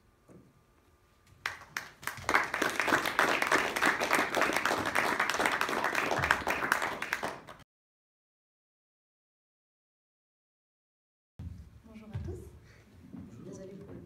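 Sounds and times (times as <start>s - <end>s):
audience applauding: 1.4s - 7.6s.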